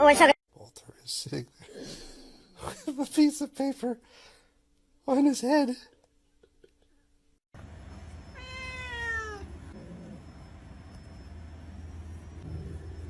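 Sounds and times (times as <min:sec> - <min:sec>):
cat meowing: 0:08.2 - 0:09.5
steady low hum: 0:09.4 - 0:13.0.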